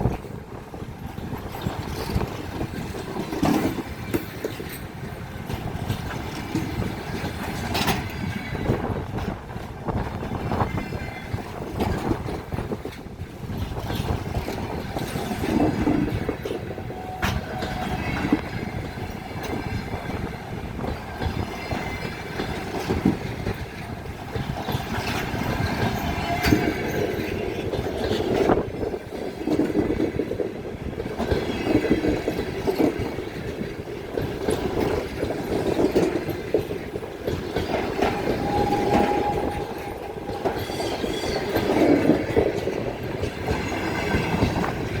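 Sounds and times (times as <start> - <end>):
train wheels clattering: 0.0 - 45.0
short thin wheel squeal: 38.0 - 41.6.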